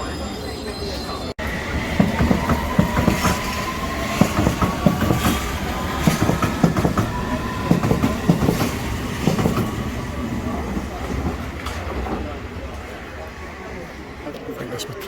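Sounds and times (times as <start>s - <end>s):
train wheels clattering on rails: 1.6s - 13.0s.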